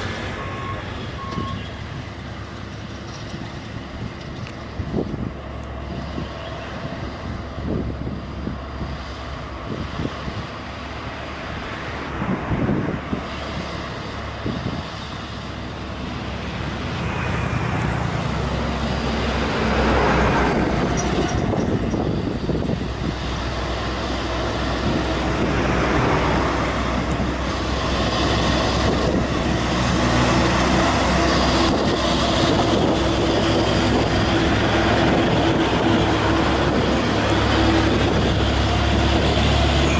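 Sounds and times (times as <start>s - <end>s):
truck engine climbing hill: 0.0s - 39.9s.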